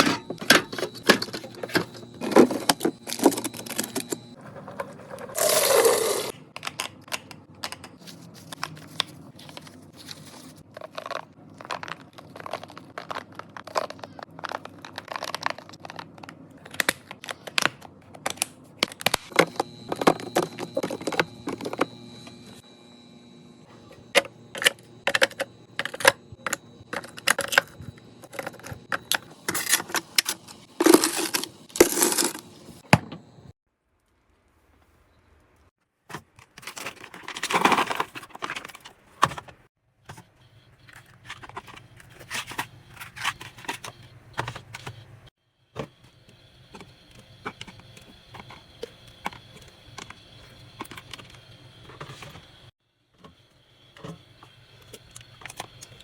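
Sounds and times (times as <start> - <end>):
packaging rustling: 8.0 - 22.0, 36.2 - 39.7
containers clicking and tapping: 24.2 - 32.4.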